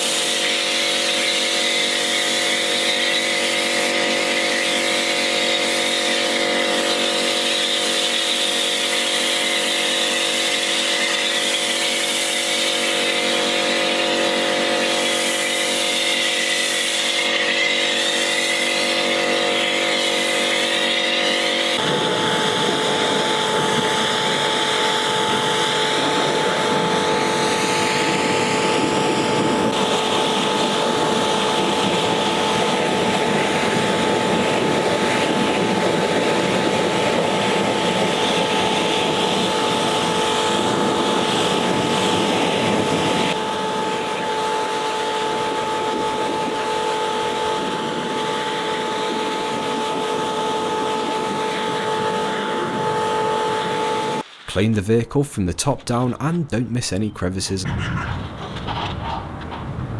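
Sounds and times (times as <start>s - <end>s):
high-pressure water jet hissing: 0.0s - 43.3s.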